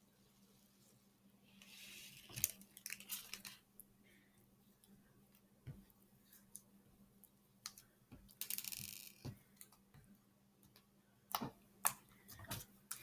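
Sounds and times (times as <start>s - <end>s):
plastic beads clicking: 8.4s - 9.3s.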